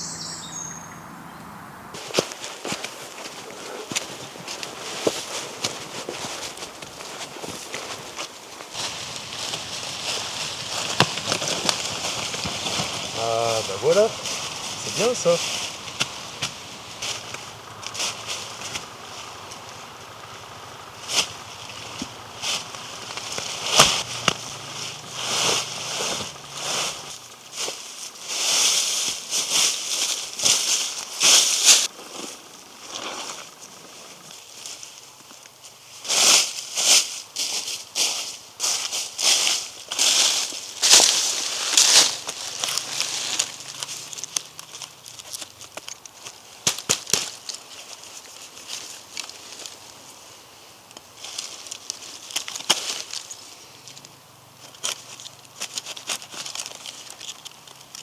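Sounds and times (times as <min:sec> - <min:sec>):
dry leaves and twigs crunching: 0:02.0 - 0:58.0
sharp wood cracks: 0:08.6 - 0:27.1, 0:40.8 - 0:47.7, 0:50.9 - 0:58.0
twigs snapping: 0:08.7 - 0:27.1, 0:40.8 - 0:47.7, 0:50.9 - 0:58.0.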